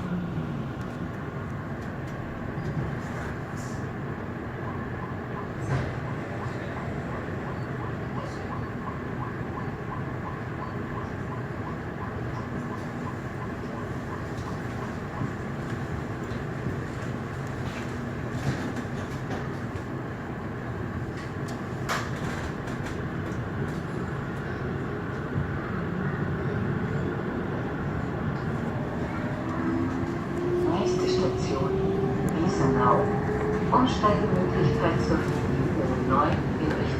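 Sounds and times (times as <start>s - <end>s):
train rumble inside car: 0.0s - 36.9s.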